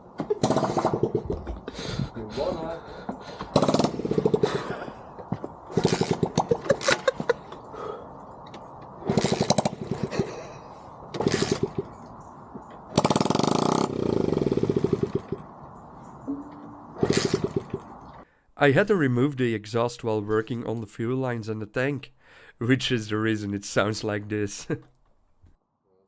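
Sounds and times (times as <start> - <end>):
small engine firing in bursts: 12.9 - 15.4.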